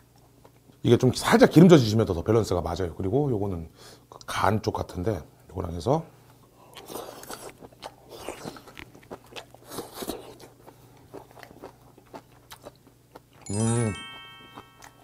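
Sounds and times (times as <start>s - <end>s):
chewing with mouth clicks: 6.5s - 13.5s, 14.4s - 15.0s
short loud ringing chime: 13.5s - 15.0s.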